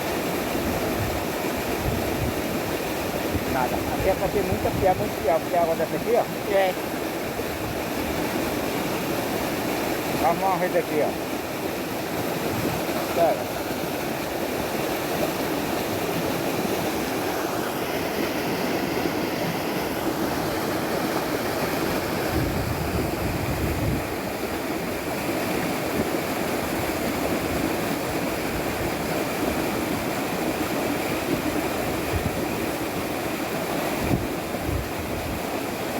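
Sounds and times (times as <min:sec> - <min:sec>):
flowing water rushing: 0:00.0 - 0:35.9
wind rumble on microphone: 0:00.6 - 0:05.4, 0:21.9 - 0:24.5, 0:31.2 - 0:33.0, 0:33.9 - 0:35.6.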